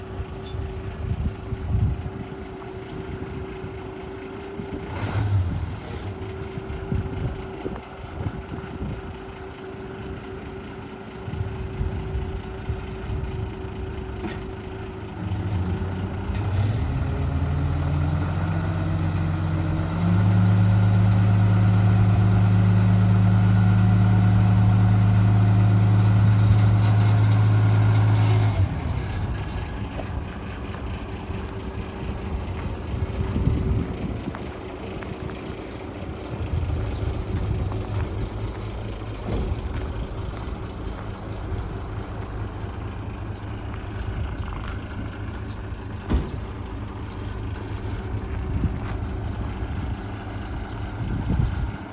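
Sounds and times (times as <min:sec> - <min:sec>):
diesel truck engine idling: 0:00.0 - 0:51.9.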